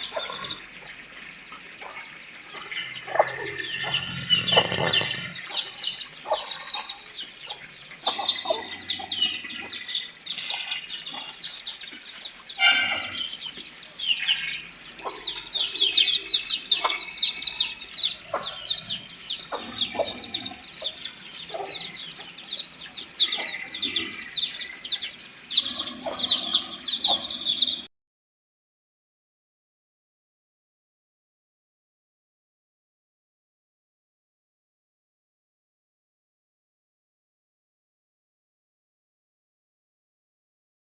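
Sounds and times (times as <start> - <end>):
flock of birds cheeping: 0.0 - 27.9
lower bird calls: 0.0 - 27.9.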